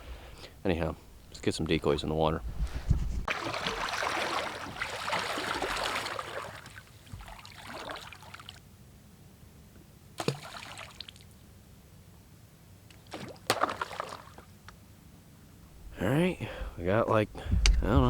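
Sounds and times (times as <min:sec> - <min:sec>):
water splashing and sloshing: 0:02.5 - 0:08.6, 0:10.2 - 0:11.3, 0:12.9 - 0:14.7.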